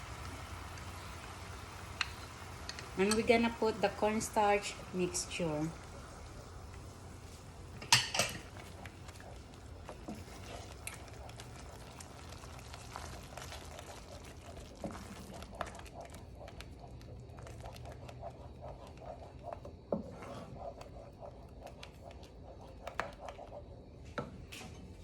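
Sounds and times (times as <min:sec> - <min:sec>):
sauce bubbling in a pan: 0:00.0 - 0:24.3.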